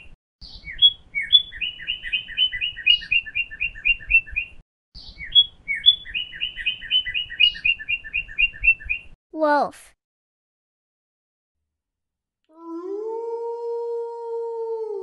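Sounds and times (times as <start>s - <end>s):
small songbird chirping: 0.0s - 9.2s.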